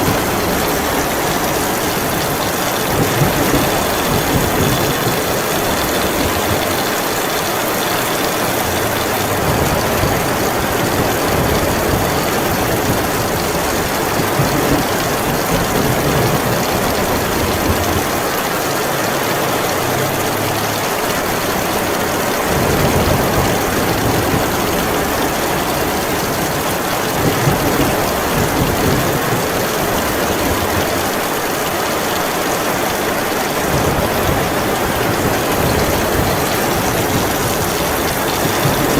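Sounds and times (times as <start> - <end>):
low thunder rumble: 0.0 - 8.0, 33.6 - 38.9
heavy rain pouring: 0.0 - 38.9.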